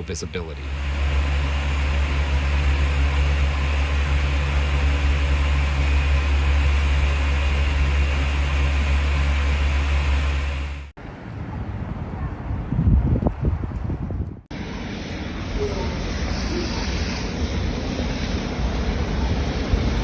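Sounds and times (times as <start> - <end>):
motor vehicle engine running: 0.7 - 10.9.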